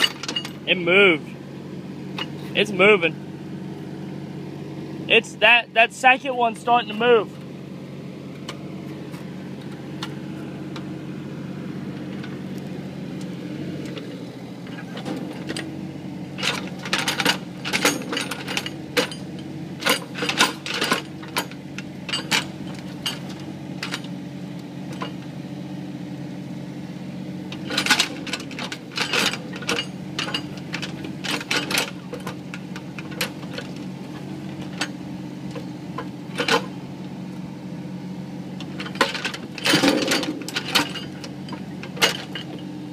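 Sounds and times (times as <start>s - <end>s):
excavator engine running: 0.0s - 42.9s
sharp knocks and clanks: 38.6s - 42.6s.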